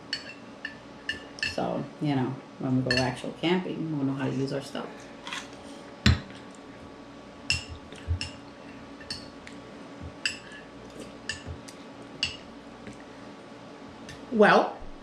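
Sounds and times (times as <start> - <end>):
spoon clinking against bowl: 2.9 - 3.1.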